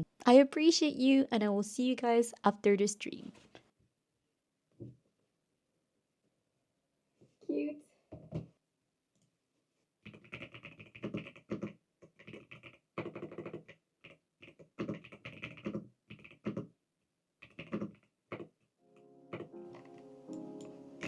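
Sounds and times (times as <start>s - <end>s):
typing on computer keyboard: 10.0s - 16.8s, 17.4s - 18.7s, 19.3s - 19.9s.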